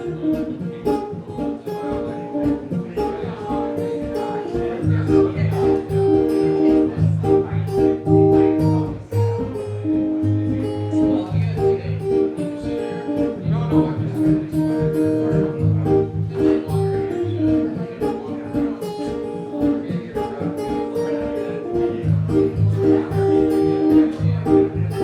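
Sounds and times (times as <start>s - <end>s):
acoustic guitar folk melody: 0.0s - 25.0s.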